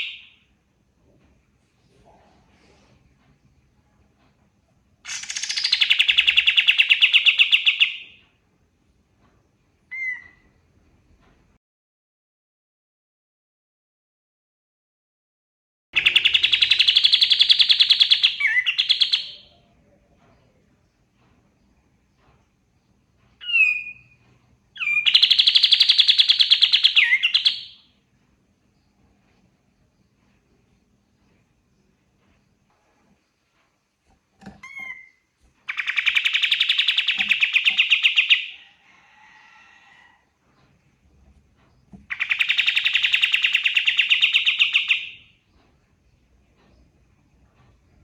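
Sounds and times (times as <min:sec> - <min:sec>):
songbird whistling and trilling: 0:05.2 - 0:08.1, 0:09.9 - 0:10.4, 0:16.0 - 0:19.5, 0:23.4 - 0:24.2, 0:24.8 - 0:27.9, 0:34.6 - 0:38.6, 0:42.1 - 0:45.3
bird singing fast trill: 0:24.8 - 0:27.8.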